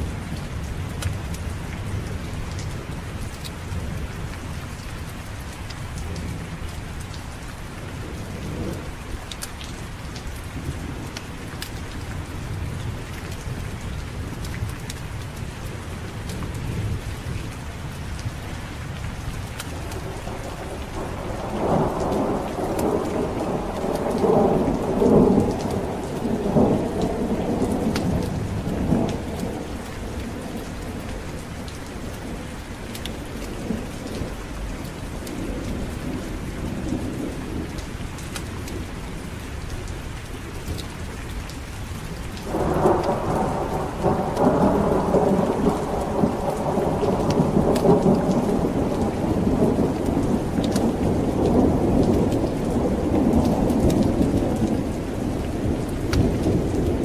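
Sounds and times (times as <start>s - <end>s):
heavy rain: 0.0s - 57.0s
rolling thunder: 19.7s - 37.8s, 42.4s - 57.0s.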